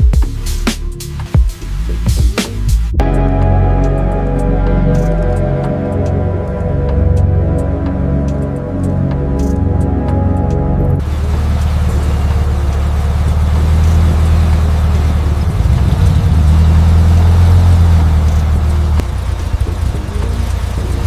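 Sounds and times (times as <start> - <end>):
background music: 0.0 - 11.0
car engine rumbling: 2.8 - 21.0.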